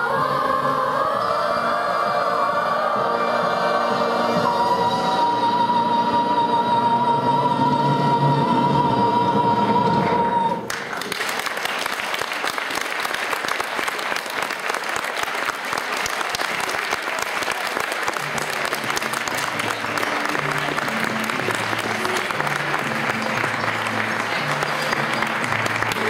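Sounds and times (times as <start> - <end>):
children's choir singing: 0.0 - 10.9, 18.2 - 26.0
audience applause: 10.7 - 26.0.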